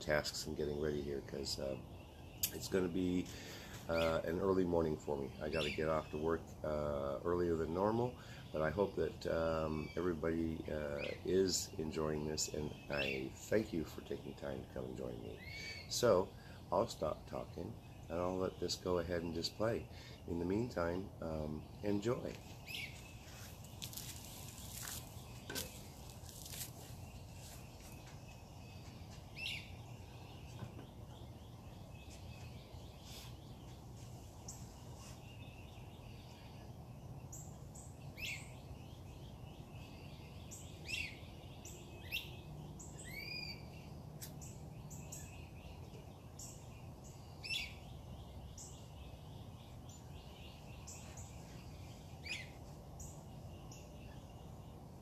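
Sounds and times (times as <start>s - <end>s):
birds calling sharply: 0.0s - 55.0s
high chirps chorus: 15.3s - 34.8s.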